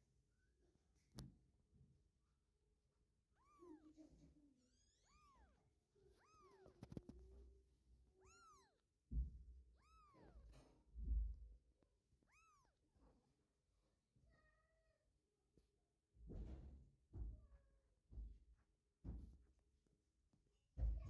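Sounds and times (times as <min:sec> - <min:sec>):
kitten mewing: 0:03.4 - 0:03.9, 0:04.7 - 0:07.4, 0:08.2 - 0:08.8, 0:09.8 - 0:10.5, 0:12.3 - 0:12.8.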